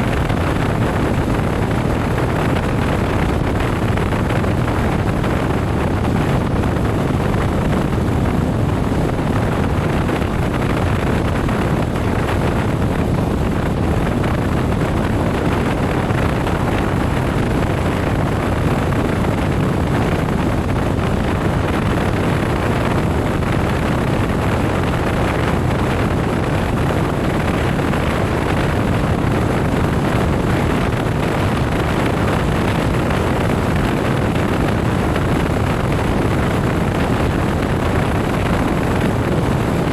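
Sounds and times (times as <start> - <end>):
wind and road noise on motorcycle: 0.0 - 39.9.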